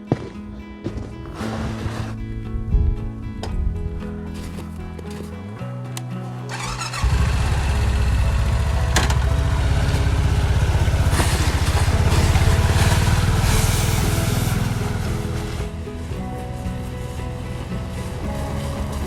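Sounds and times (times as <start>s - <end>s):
small vehicle engine running: 6.5s - 19.0s.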